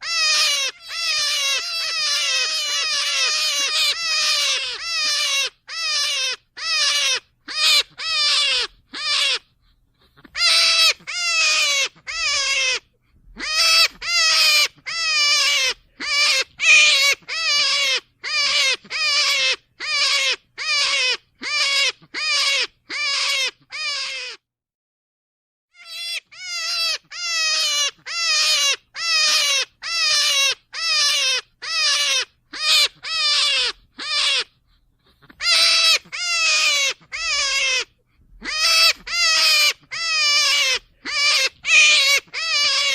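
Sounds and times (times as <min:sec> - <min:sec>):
rabbit high cries: 0:00.0 - 0:24.4, 0:25.7 - 0:42.9.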